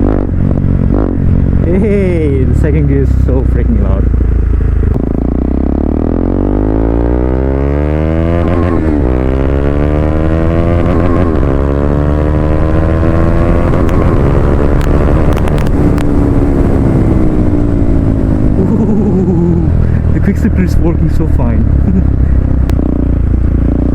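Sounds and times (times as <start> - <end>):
motorcycle engine accelerating: 0.0 - 23.9
gear upshifts: 7.1 - 23.2.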